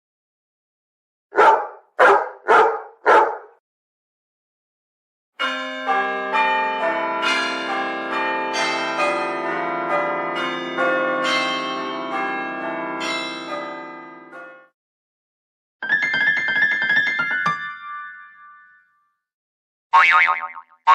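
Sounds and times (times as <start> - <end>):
church bells pealing: 5.4 - 14.6.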